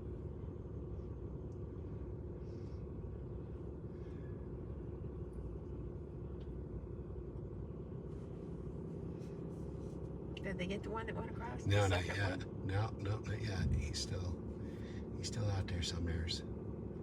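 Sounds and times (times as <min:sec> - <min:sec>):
vehicle engine idling: 0:08.0 - 0:17.0.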